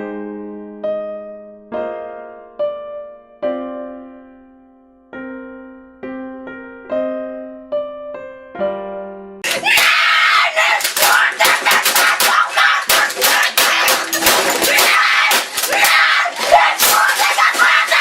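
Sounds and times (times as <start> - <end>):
boy screaming: 9.4 - 18.0
sharp knocks: 10.8 - 18.0.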